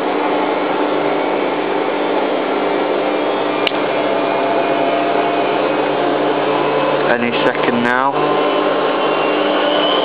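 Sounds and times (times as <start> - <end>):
washing machine spinning: 0.0 - 10.0
sharp click: 3.6 - 3.9.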